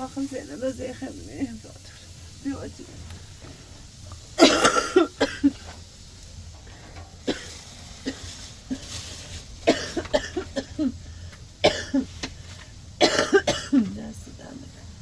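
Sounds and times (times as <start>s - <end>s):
woman coughing: 4.4s - 5.7s, 7.3s - 7.5s, 9.6s - 11.0s, 11.6s - 12.1s, 13.0s - 13.9s.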